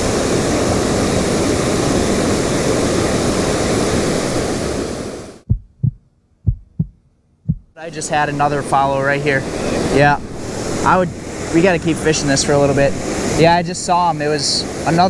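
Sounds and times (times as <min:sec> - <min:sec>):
waterfall rushing: 0:00.0 - 0:05.4, 0:07.8 - 0:15.0
soft low thumps: 0:05.4 - 0:07.8.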